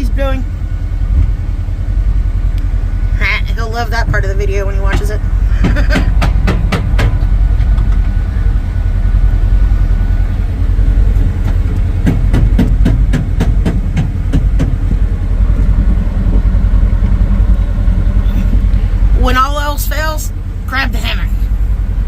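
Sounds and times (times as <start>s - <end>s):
wind buffeting microphone: 3.5s - 19.3s.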